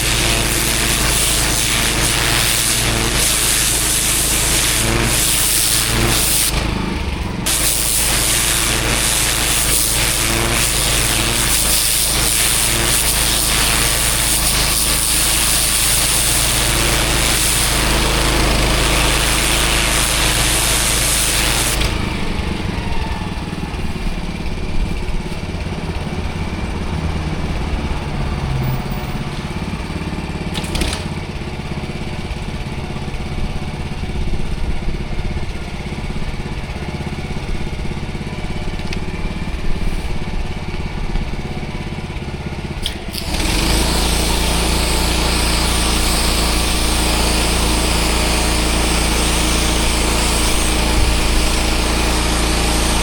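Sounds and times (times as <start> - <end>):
water spray hissing: 0.0 - 22.4, 42.8 - 53.0
pressure washer engine running: 0.0 - 53.0.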